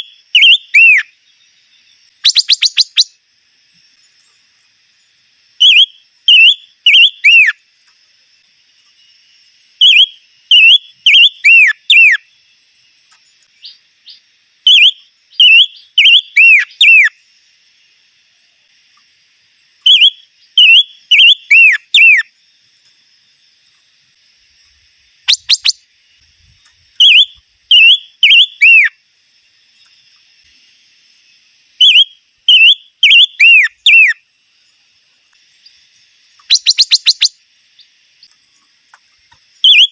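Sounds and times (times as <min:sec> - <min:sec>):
songbird whistling phrases: 0:00.0 - 0:01.1, 0:02.2 - 0:03.2, 0:05.6 - 0:07.6, 0:09.8 - 0:12.3, 0:14.7 - 0:17.2, 0:19.8 - 0:22.3, 0:25.3 - 0:25.8, 0:27.0 - 0:29.0, 0:31.8 - 0:34.2, 0:36.4 - 0:37.4, 0:39.6 - 0:39.9.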